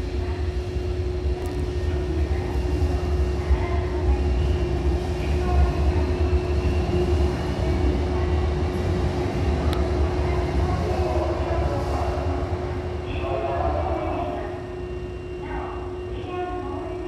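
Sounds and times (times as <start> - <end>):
electric train running past: 0.0 - 16.4
steady train hum: 0.0 - 17.0.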